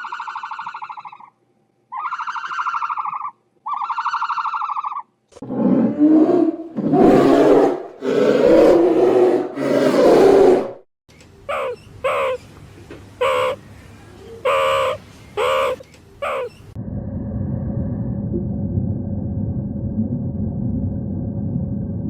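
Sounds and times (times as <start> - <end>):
short pitched animal calls: 0.0 - 5.1, 11.5 - 12.4, 13.2 - 13.6, 14.4 - 16.8
loud rough animal calls: 13.2 - 13.6, 14.4 - 16.8
low rumble: 16.7 - 22.0.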